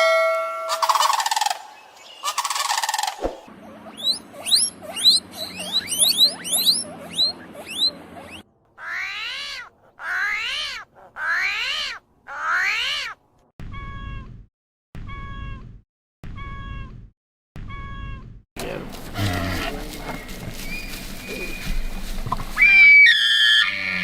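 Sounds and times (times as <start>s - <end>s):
short animal calls: 3.7s - 13.2s
rapid high chirps: 4.0s - 8.4s.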